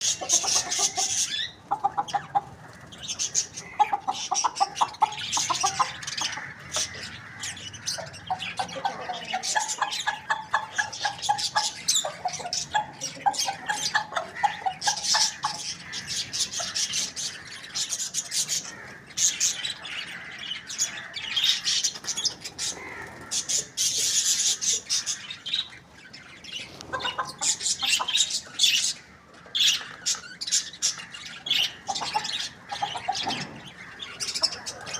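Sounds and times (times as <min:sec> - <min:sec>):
chickens clucking: 0:00.0 - 0:34.9.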